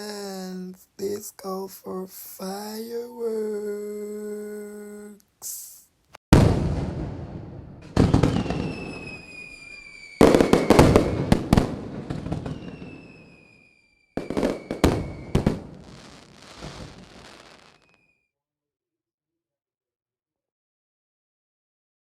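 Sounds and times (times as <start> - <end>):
fireworks bangs and crackling: 6.3 - 18.0
fireworks whistles falling in pitch: 8.0 - 18.2.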